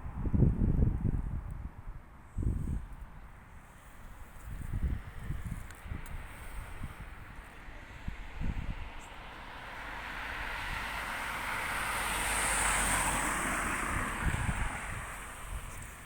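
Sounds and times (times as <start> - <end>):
vehicle passing by: 7.8 - 16.0.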